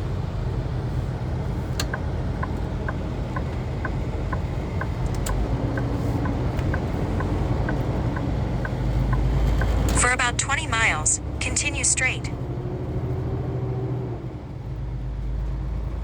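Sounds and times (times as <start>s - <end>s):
truck engine running: 0.0s - 12.5s
regular ticking: 1.8s - 12.3s.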